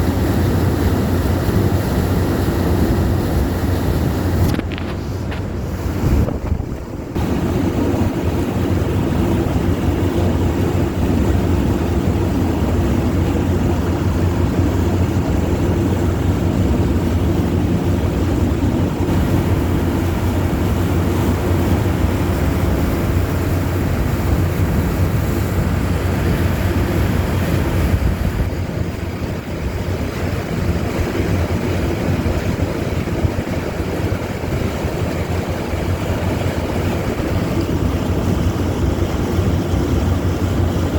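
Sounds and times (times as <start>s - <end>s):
boat engine running: 0.0s - 40.9s
wind buffeting microphone: 0.0s - 40.9s.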